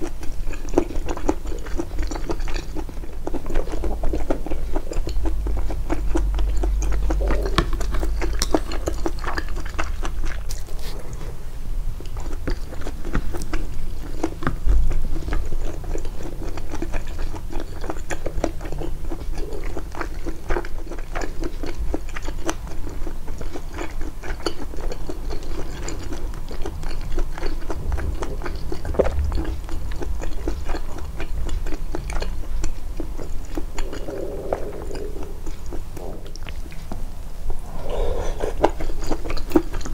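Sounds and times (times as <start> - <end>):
mouth chewing food: 0.0 - 39.9.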